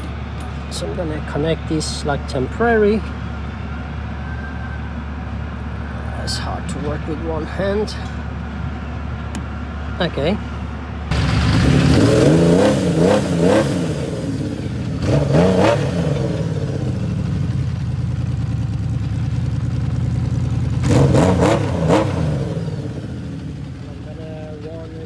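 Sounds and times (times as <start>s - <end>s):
motorcycle engine revving: 11.1s - 25.0s.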